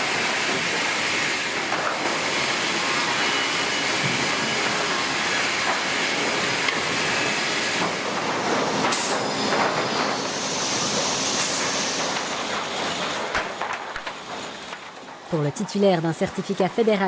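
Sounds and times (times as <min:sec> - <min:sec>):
conveyor rattle and rumble: 0:04.0 - 0:17.0.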